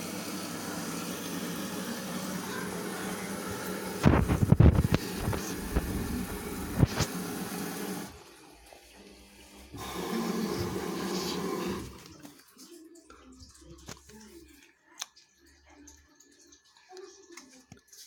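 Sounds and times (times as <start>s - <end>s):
washing machine running: 0.0s - 12.3s.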